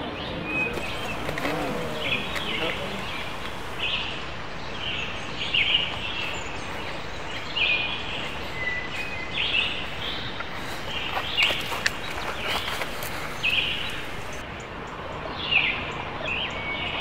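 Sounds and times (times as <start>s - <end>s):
birds chirping: 0.0s - 17.0s
steady outdoor hiss: 0.0s - 17.0s.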